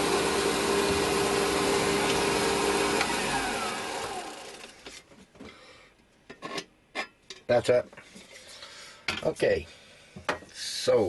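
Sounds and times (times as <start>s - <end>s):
lathe running and spinning down: 0.0s - 4.8s.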